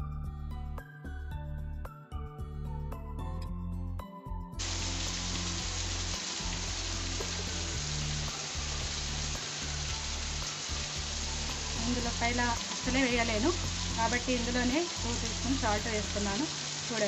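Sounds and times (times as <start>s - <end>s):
background music: 0.0s - 17.0s
food sizzling in frying pan: 4.6s - 17.0s.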